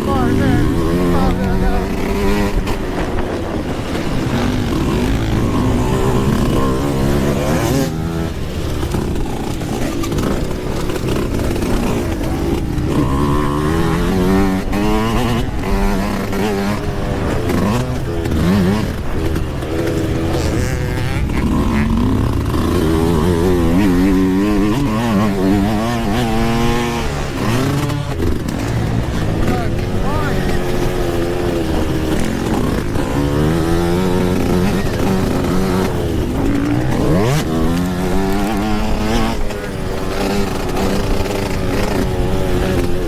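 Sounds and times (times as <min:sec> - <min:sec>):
two-stroke dirt bike engine revving: 0:00.0 - 0:43.0.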